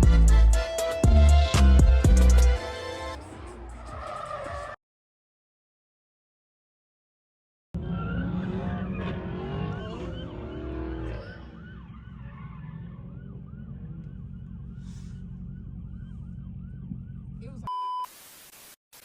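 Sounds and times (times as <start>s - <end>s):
other sweeping siren tones: 2.6s - 4.8s, 7.8s - 17.7s
low vehicle rumble: 7.8s - 17.6s
siren yelping: 7.8s - 17.7s.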